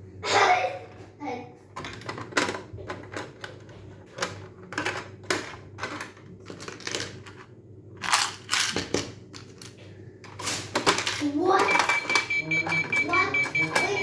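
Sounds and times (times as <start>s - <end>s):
plastic toy clicks and clacks: 10.7s - 14.0s.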